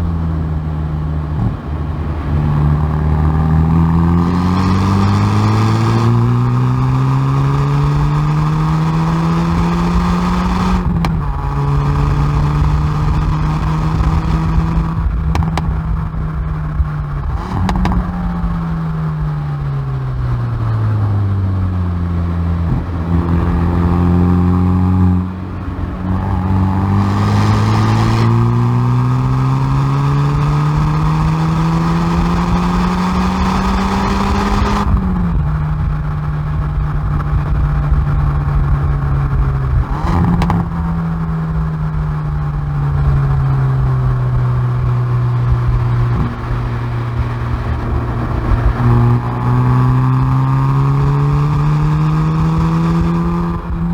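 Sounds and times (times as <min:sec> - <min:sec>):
blipped downshifts: 0:00.0 - 0:53.9
exhaust cracks: 0:00.0 - 0:53.9
car engine revving hard: 0:01.1 - 0:20.0, 0:22.1 - 0:37.3, 0:38.7 - 0:41.7, 0:42.6 - 0:53.9.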